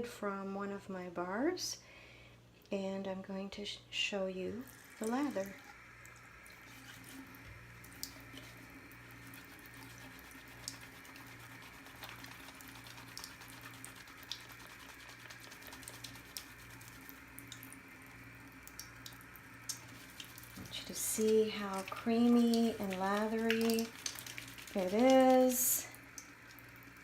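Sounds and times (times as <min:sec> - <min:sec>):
steady low hum: 0:00.0 - 0:27.0
wet hands lathering soap: 0:06.5 - 0:17.8, 0:18.6 - 0:27.0.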